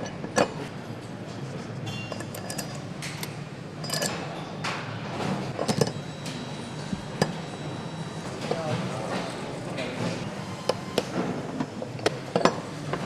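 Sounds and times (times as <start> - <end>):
steady background hum: 0.0 - 13.0
metallic clinks and knocks: 5.6 - 6.3.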